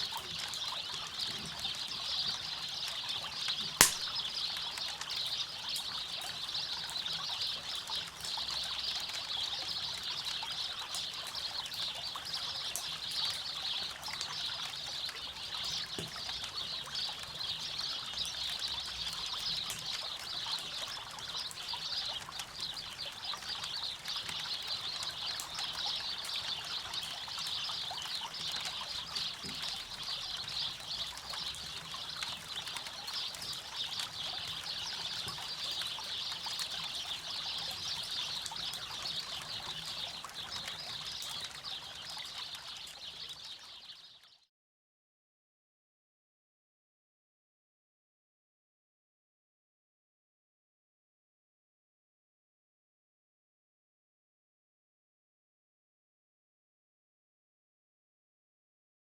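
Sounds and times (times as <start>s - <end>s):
sharp loud pop: 3.8s - 4.2s
campfire crackling: 3.8s - 4.3s.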